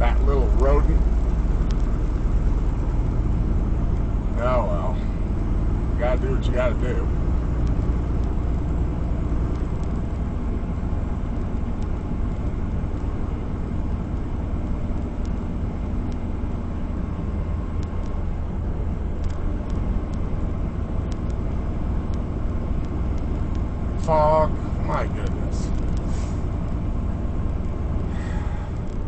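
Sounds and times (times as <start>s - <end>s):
diesel engine drone: 0.0s - 29.0s
road and tyre noise: 0.0s - 29.0s
faint ticks: 1.6s - 2.0s, 21.0s - 21.5s, 27.4s - 29.0s.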